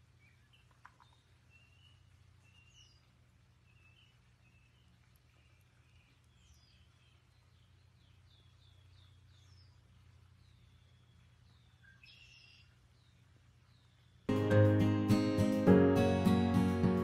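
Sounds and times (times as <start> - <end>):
birds chirping and whistling: 0.2 - 3.1, 10.4 - 14.2.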